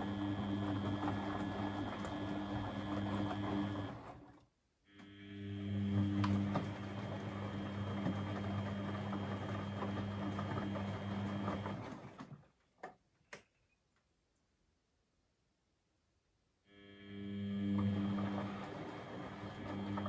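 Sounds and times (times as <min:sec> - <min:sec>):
washing machine motor humming: 0:00.0 - 0:12.6, 0:16.7 - 0:20.0
laundry sloshing and tumbling: 0:06.3 - 0:12.6.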